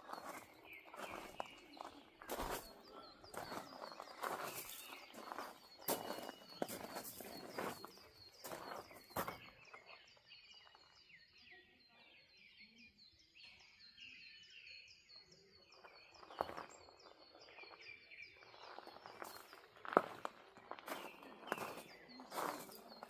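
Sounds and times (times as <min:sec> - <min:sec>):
footsteps: 0:00.0 - 0:09.6, 0:18.7 - 0:23.0
small bird chirping: 0:00.0 - 0:23.0.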